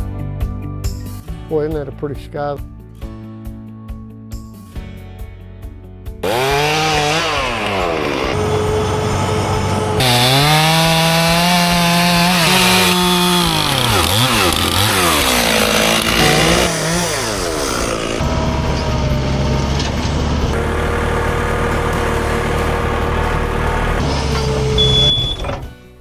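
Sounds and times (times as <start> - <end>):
chainsaw at full throttle: 6.2 - 25.4
low steady engine sound: 8.4 - 10.2, 18.1 - 25.7.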